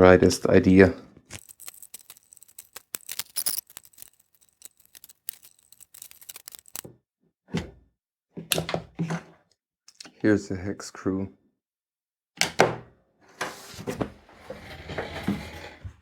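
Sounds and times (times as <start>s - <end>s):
pry tool scraping plastic: 1.3s - 6.9s.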